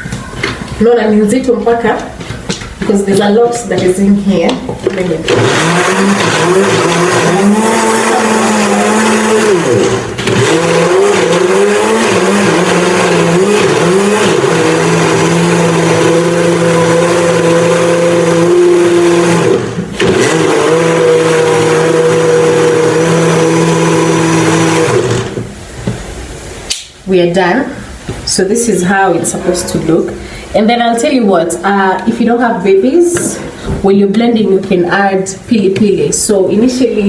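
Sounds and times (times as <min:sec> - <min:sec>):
blender motor running: 0:05.3 - 0:25.6.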